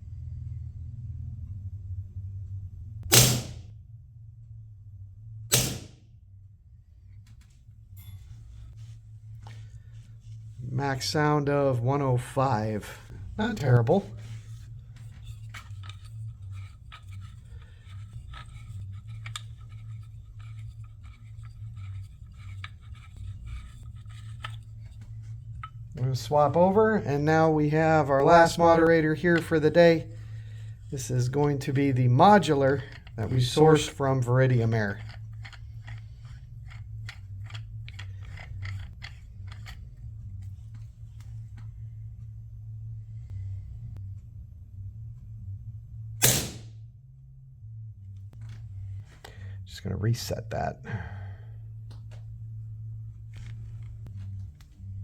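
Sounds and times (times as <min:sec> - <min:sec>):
low electrical hum: 0:00.0 - 0:55.0
clicks and scrapes of small gear: 0:13.4 - 0:26.9, 0:28.2 - 0:41.7.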